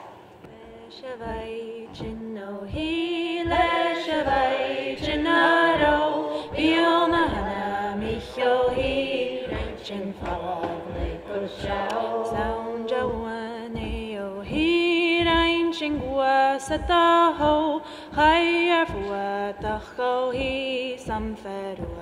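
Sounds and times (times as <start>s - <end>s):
group singing unaccompanied: 0.0s - 22.0s.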